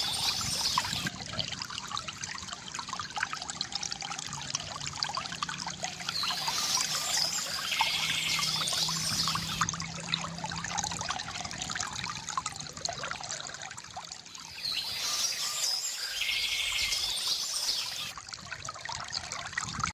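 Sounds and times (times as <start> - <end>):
bird singing: 0.0 - 1.1, 6.1 - 9.7, 14.4 - 18.1
fountain water trickling: 0.0 - 19.9.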